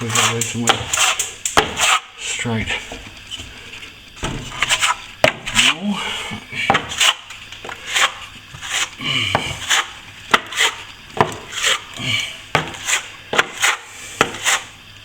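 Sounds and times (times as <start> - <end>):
trowel scraping wet plaster: 0.0 - 2.3, 4.4 - 5.9, 6.6 - 14.8.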